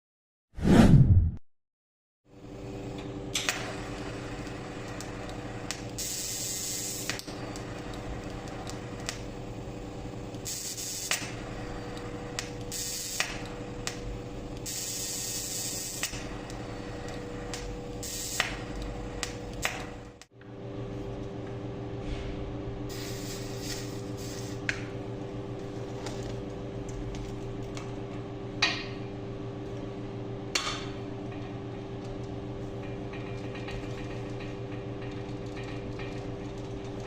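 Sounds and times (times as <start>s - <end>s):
steady welder hum: 2.3s - 37.0s
welding arc hissing: 3.4s - 20.2s, 22.9s - 24.7s.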